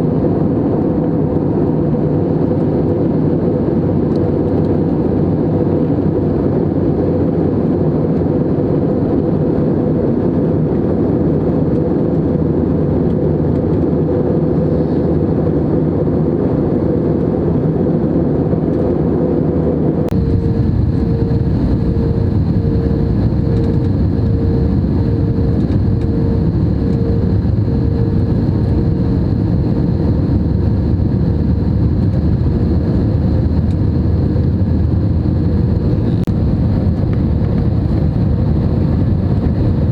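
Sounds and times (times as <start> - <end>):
aircraft cabin engine roar: 0.0 - 39.9
faint pulsing hum: 19.9 - 39.9.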